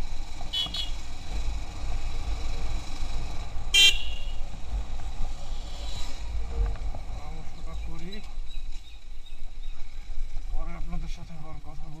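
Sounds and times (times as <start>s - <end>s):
motorcycle riding: 0.0s - 12.0s
wind rumble: 0.0s - 12.0s
horn toots: 0.5s - 1.1s, 3.7s - 4.5s.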